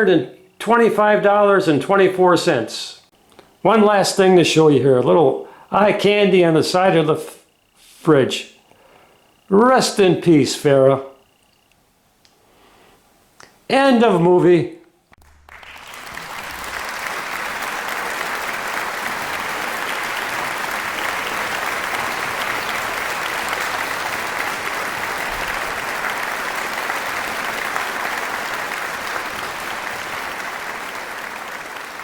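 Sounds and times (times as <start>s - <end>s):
crowd applause: 15.2s - 32.0s.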